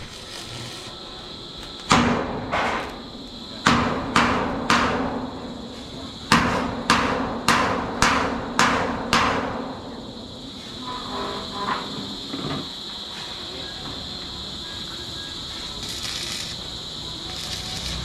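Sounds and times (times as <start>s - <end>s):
hammer striking steel: 3.6s - 5.3s, 6.3s - 9.9s.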